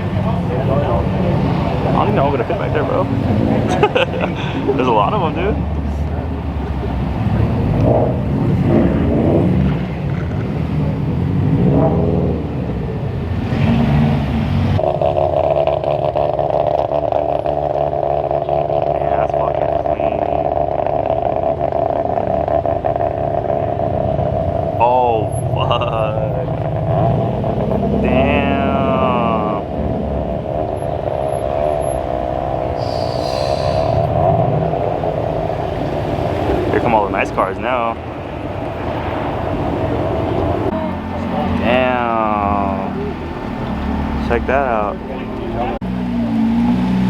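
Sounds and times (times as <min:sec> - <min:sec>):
single engine running steadily: 0:00.0 - 0:14.9, 0:26.5 - 0:47.0
car engines revving: 0:00.0 - 0:47.0.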